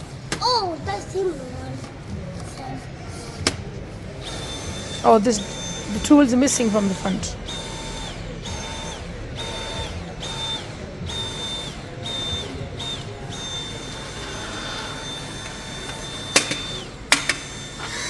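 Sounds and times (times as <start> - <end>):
small electric motor whirring: 4.2 - 18.0.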